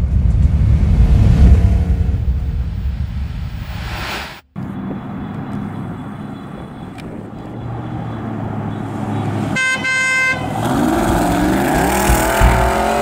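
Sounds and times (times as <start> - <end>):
car horn double honk: 9.6 - 10.7
car engine running: 10.6 - 13.0.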